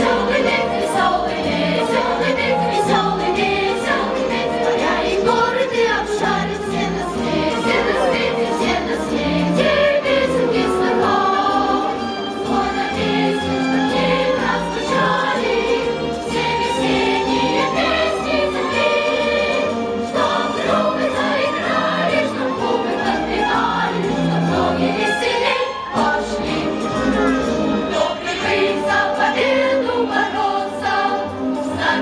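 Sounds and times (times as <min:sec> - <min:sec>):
choir singing with accompaniment: 0:00.0 - 0:32.0.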